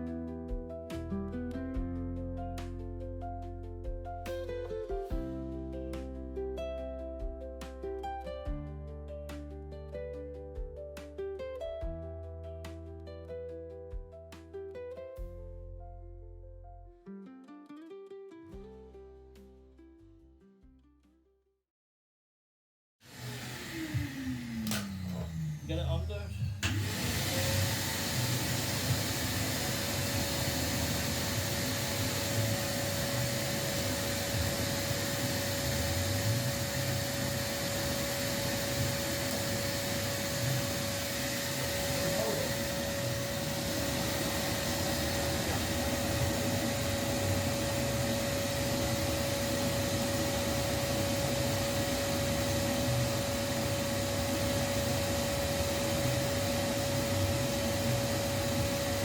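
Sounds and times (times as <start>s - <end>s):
electric motor whining: 23.1s - 59.0s.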